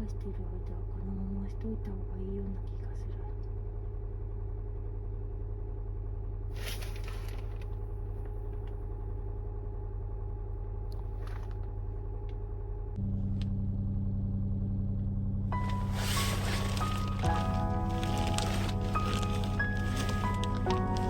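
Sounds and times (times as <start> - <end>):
car engine running: 6.4 - 21.0.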